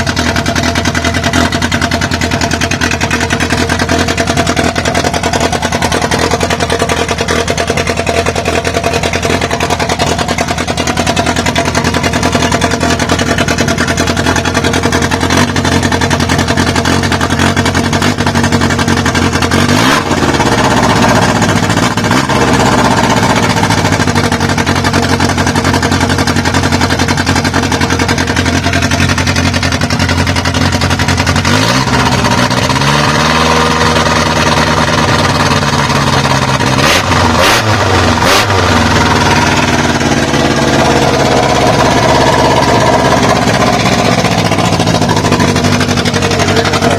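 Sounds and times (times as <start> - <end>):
car engine idling and revving: 0.0 - 46.9.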